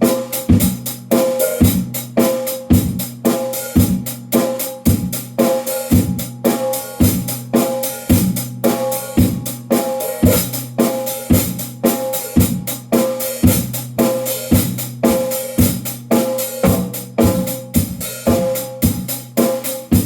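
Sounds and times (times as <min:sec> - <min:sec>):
hand drum playing: 0:16.6 - 0:18.5.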